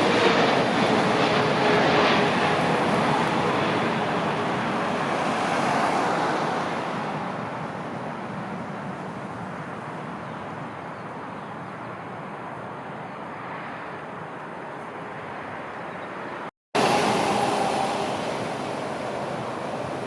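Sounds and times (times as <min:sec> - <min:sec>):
jet airliner passing by: 0:00.0 - 0:10.2, 0:16.8 - 0:20.0.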